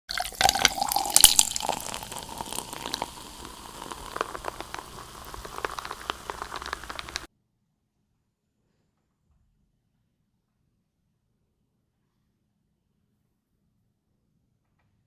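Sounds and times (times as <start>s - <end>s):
crackling bite of food: 0.1s - 7.3s
wet chewing clicks and smacks: 0.4s - 7.3s.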